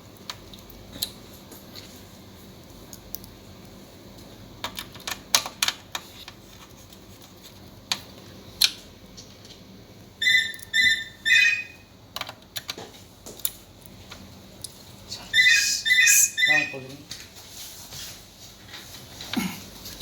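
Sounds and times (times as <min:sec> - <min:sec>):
short chirps: 0:15.4 - 0:16.7.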